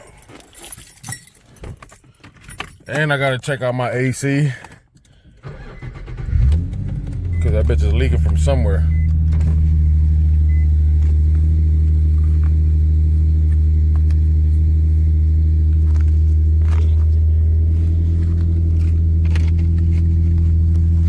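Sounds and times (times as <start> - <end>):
car engine idling: 5.4 - 21.0.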